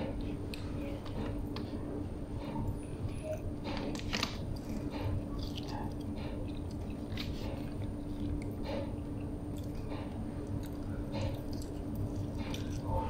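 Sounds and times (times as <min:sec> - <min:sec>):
steady low hum: 0:00.0 - 0:13.0
chewing with wet mouth clicks: 0:04.1 - 0:13.0.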